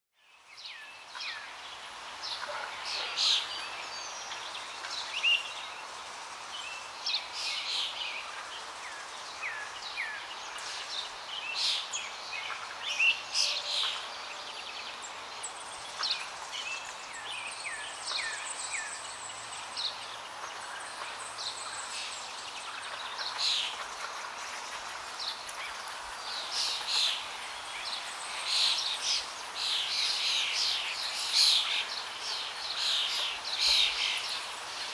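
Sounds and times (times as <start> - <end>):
small birds chirping: 0.2 - 34.9
steady background hiss: 0.2 - 34.9.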